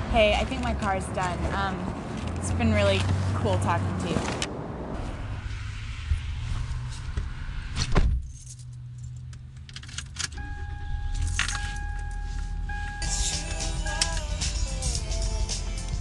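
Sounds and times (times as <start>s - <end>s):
low car rumble: 0.0s - 14.7s
background music: 12.8s - 16.0s.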